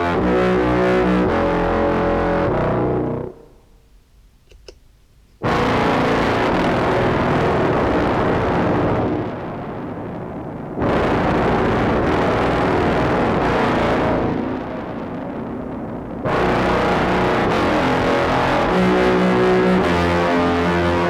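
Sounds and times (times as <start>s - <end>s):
faint clicks: 4.4s - 4.8s.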